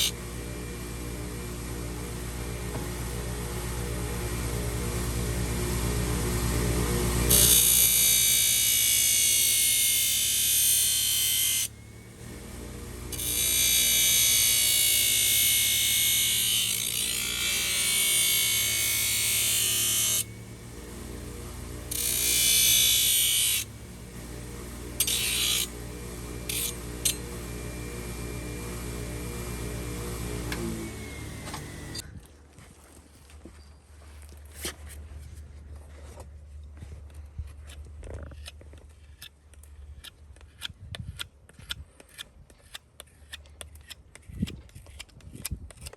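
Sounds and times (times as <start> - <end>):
power tool grinding hoof: 0.0 - 32.0.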